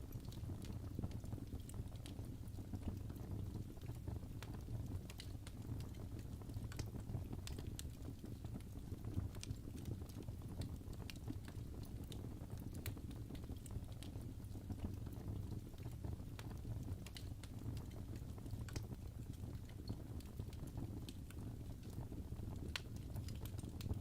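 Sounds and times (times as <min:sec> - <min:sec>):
fire crackling and popping: 0:00.0 - 0:24.0
low rumble of burning fire: 0:00.0 - 0:24.0.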